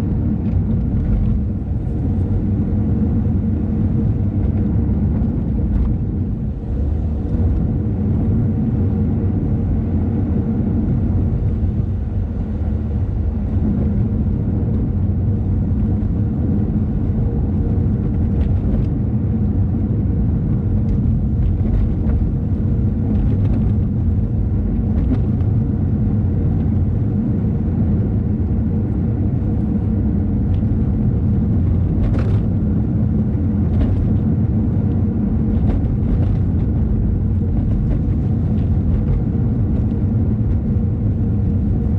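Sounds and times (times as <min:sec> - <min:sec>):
car engine and tyres rumbling: 0:00.0 - 0:41.9.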